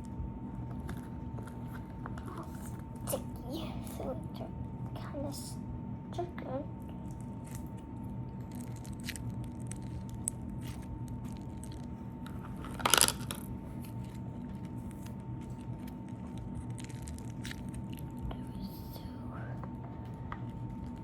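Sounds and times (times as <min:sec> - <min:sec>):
crunchy slime squeezed by hand: 0:07.0 - 0:18.7.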